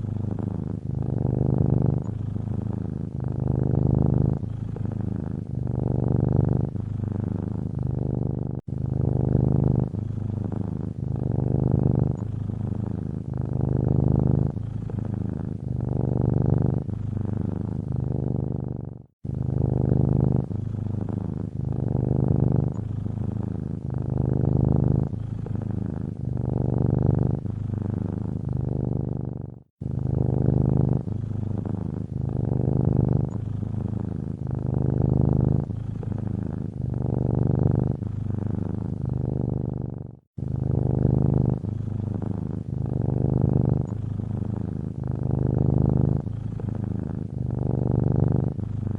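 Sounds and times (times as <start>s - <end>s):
cat purring: 0.0s - 48.9s.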